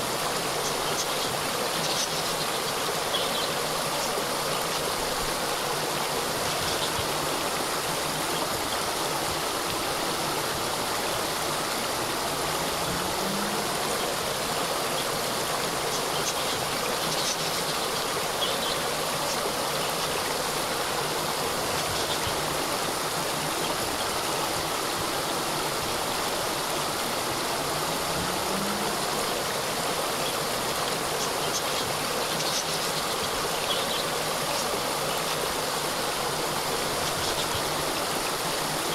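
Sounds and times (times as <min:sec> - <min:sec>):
water cascade rushing: 0:00.0 - 0:38.9.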